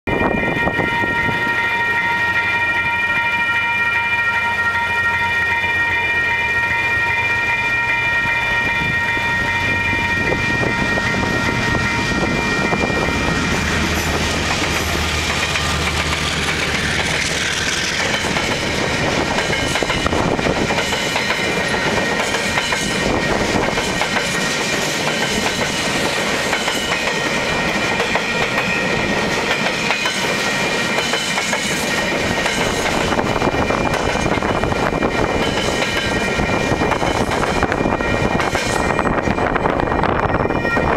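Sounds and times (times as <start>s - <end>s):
diesel locomotive engine hum: 0.1s - 40.9s
train wheels clattering over rails: 13.4s - 39.2s.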